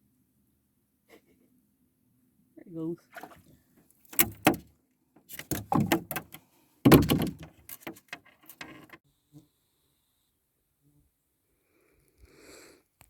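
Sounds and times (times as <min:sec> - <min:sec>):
fishing gear knocking and rattling: 0:04.1 - 0:04.7, 0:05.3 - 0:09.0.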